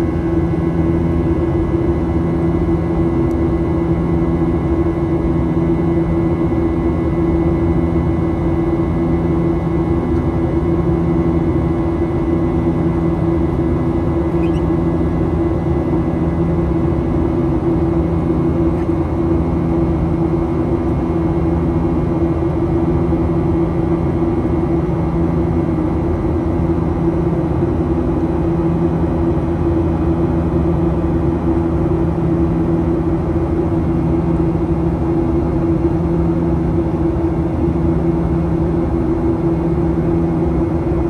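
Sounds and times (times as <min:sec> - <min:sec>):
low tonal hum: 0:00.0 - 0:19.6
jet engines droning: 0:00.0 - 0:41.0.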